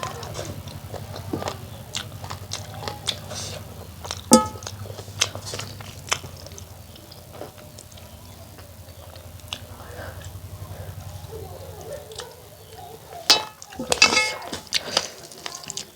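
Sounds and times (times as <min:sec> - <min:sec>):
steady low hum: 0:00.0 - 0:15.4
wet chewing: 0:00.0 - 0:15.9
loud clink with ringing tone: 0:04.3 - 0:04.7.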